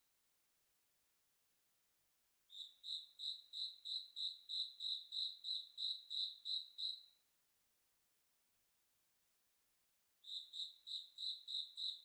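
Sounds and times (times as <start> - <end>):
cricket chirping: 2.5 - 7.1, 10.2 - 12.0.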